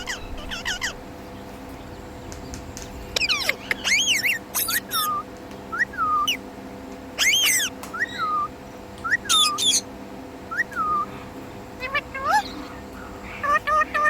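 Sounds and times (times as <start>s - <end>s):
parakeet harsh screeches: 0.0s - 1.0s, 3.2s - 5.2s, 7.2s - 8.2s, 11.8s - 14.0s
parakeet whistled calls: 0.0s - 1.0s, 3.2s - 6.4s, 7.2s - 9.9s, 10.5s - 11.1s, 11.8s - 14.0s.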